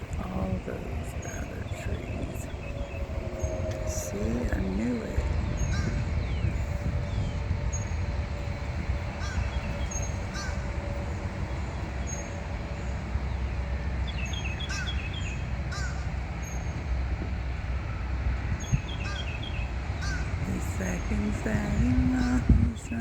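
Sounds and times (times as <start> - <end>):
birds chirping: 0.0 - 23.0
low rumble: 0.0 - 23.0.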